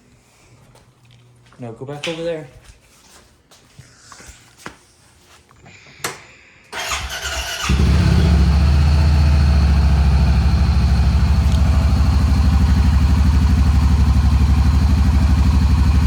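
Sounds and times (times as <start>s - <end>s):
engine cranking and idling: 6.8s - 16.0s.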